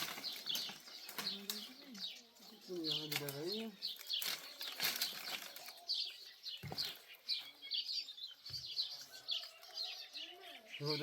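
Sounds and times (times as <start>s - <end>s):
rustling: 0.0s - 1.8s, 3.0s - 7.0s
small birds chirping: 0.0s - 11.0s.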